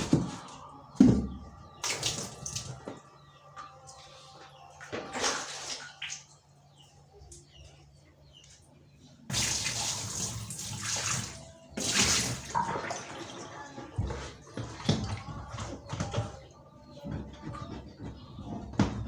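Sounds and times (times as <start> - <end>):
water running and splashing: 9.3 - 15.8.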